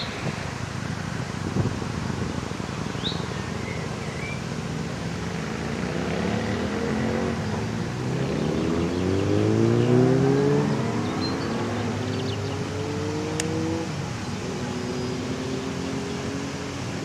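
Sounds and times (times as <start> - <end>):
bird chirping: 2.7 - 4.5, 7.0 - 16.6
engine speeding up: 4.5 - 17.0.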